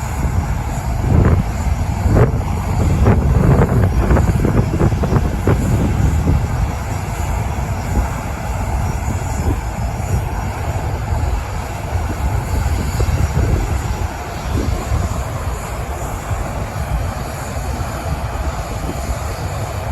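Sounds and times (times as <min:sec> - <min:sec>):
jet engines idling: 0:00.0 - 0:19.9
wind buffeting microphone: 0:00.0 - 0:19.9.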